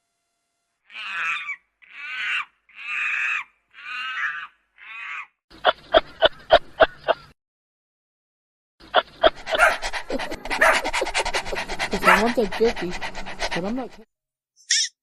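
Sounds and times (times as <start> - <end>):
animal calling: 0.9 - 7.3, 8.9 - 14.0.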